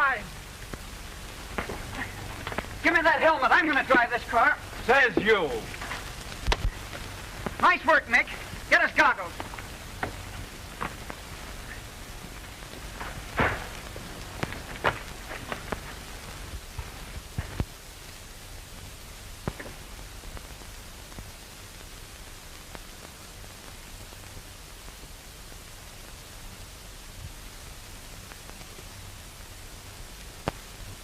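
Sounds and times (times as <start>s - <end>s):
film soundtrack hiss and hum: 0.0s - 31.0s
sharp clicks and crackles: 0.4s - 3.0s, 3.6s - 17.8s, 18.8s - 21.9s, 30.2s - 31.0s.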